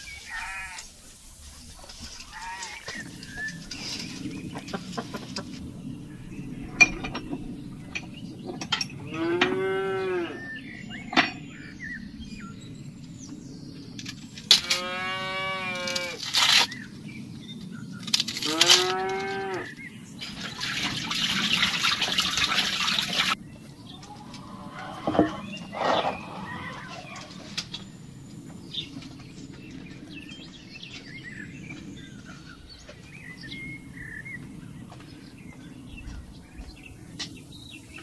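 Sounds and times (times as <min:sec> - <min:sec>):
cow mooing: 0:09.0 - 0:10.5, 0:14.5 - 0:16.2, 0:18.4 - 0:19.8.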